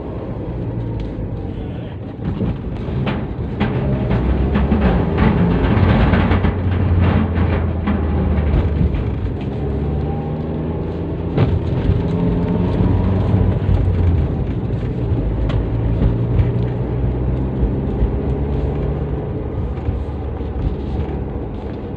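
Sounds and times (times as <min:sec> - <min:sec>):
car exhaust drone: 0:00.0 - 0:21.9.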